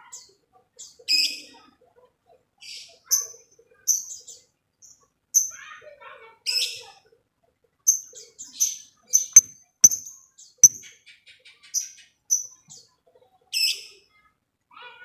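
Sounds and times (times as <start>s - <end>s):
faint ticking bird calls: 9.4s - 10.0s.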